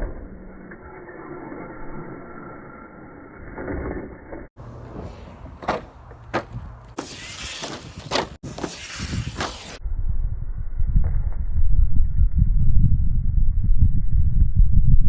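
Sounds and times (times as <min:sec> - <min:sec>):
rc truck driving: 0:00.0 - 0:09.8
rc truck knocking and clattering: 0:04.6 - 0:09.8.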